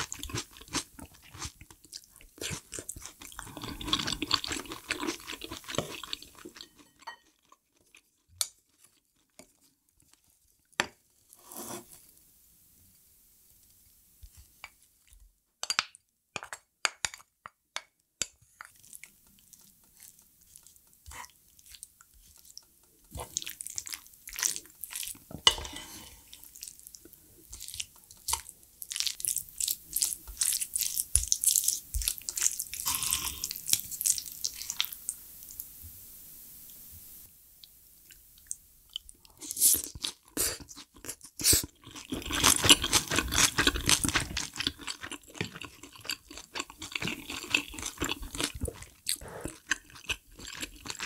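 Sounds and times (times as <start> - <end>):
wet chewing and smacking: 26.5 - 32.8, 39.8 - 51.0.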